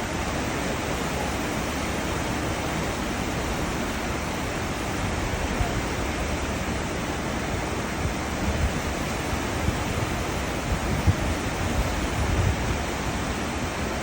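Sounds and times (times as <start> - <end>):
ship wake churning water: 0.0 - 14.0.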